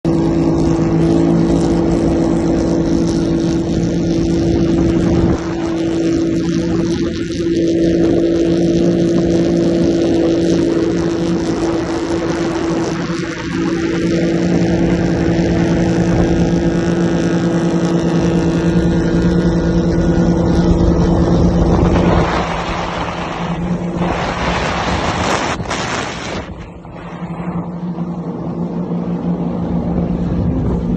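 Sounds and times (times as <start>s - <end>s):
jet ski engine running: 0.0s - 30.9s
water rushing: 0.0s - 30.9s
loud rushing noise: 19.6s - 30.9s.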